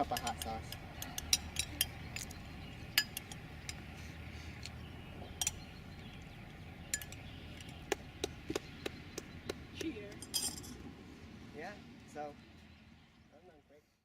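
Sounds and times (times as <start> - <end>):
glassware and utensils clinking: 10.2 - 10.8.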